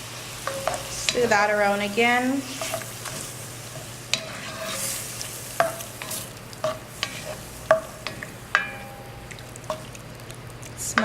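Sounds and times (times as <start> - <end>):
faint sizzle: 0.0 - 11.0
spoon clinking against pan: 7.7 - 9.4.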